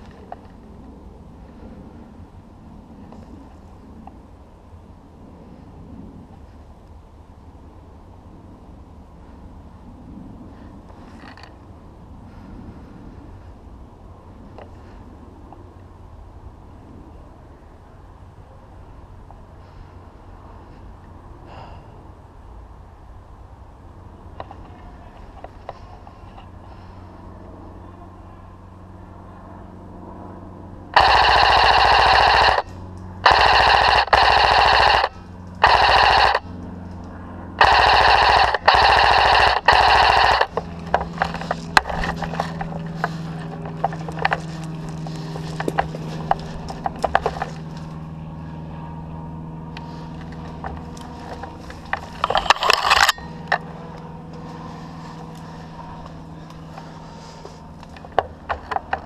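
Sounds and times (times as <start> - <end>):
airsoft rifle firing bursts: 31.0 - 36.5, 37.6 - 43.1.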